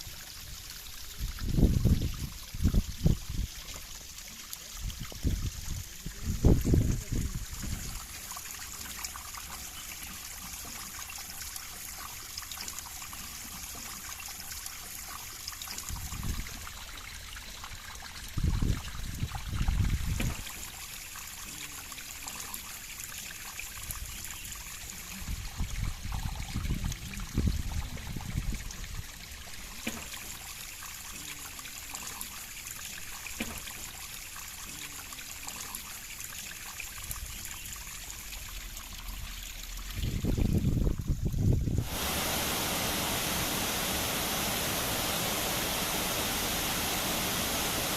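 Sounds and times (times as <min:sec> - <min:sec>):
river water flowing: 0:41.8 - 0:47.9.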